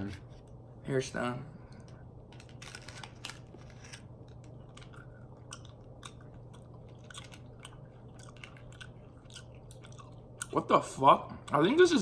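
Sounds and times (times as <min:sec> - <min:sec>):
steady low hum: 0:00.0 - 0:12.0
paper wrapper crackling: 0:02.4 - 0:04.9
chewing gum candy: 0:04.3 - 0:10.8.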